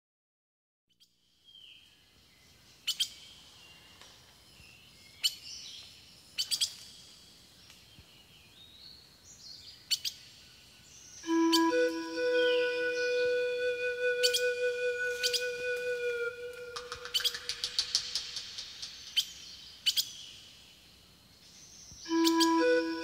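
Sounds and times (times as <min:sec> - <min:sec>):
faint high whistled notes: 0:11.2 - 0:19.4, 0:22.1 - 0:23.0
high bird chirps: 0:11.3 - 0:20.4, 0:22.1 - 0:23.0.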